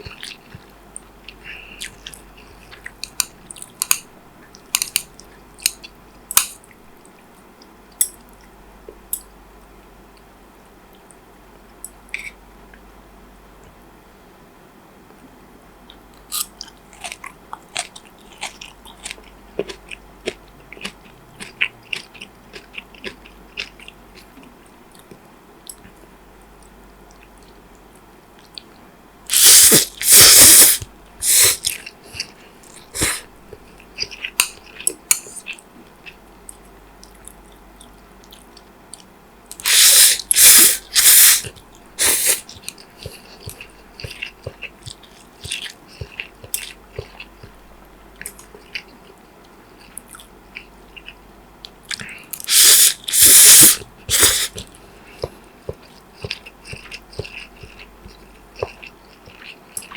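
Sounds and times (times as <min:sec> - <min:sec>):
wet chewing clicks: 0:00.0 - 0:06.8, 0:15.9 - 0:59.9
loud crunching bites: 0:29.3 - 0:31.8, 0:39.5 - 0:42.5, 0:52.4 - 0:54.7.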